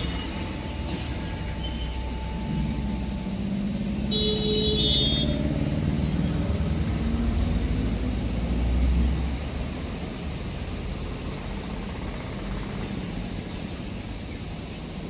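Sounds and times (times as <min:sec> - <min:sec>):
high-pitched tone: 0:00.0 - 0:06.8
moving train rumble: 0:00.0 - 0:15.0.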